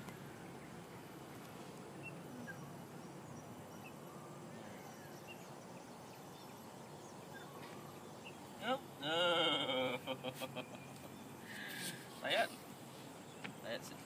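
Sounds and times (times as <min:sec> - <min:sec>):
steady low hum: 0:00.0 - 0:14.0
bird chirps: 0:01.9 - 0:08.8.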